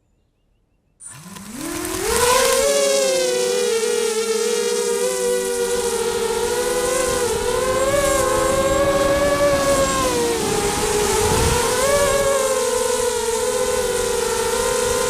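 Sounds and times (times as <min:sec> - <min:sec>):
quadcopter motors whining: 0:01.0 - 0:15.0
wind rumbling on microphone: 0:01.6 - 0:15.0.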